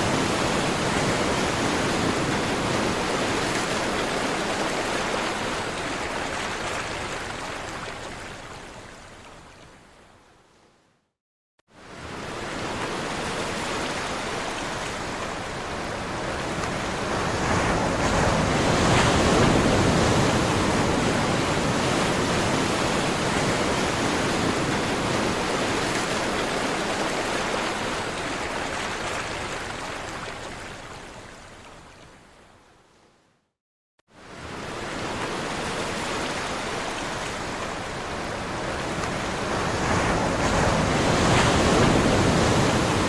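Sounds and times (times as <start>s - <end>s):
waves washing ashore: 0.0s - 9.4s, 11.7s - 32.0s, 34.1s - 43.0s.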